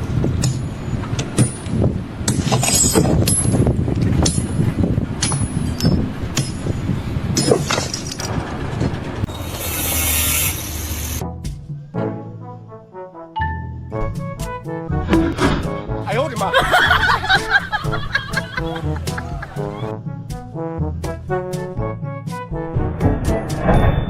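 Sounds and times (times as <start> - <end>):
mechanical rumble: 0.0 - 11.3, 22.5 - 24.0
loud hiss: 9.3 - 11.2.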